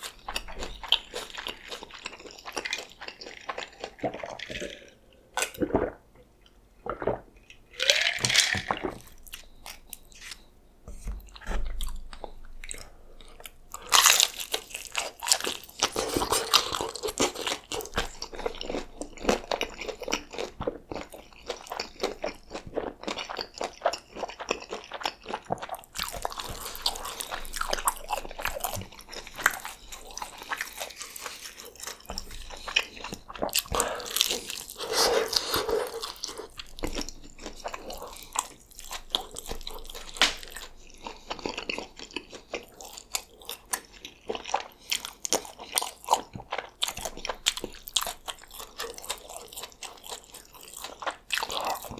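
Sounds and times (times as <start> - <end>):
wet chewing: 11.2 - 51.9.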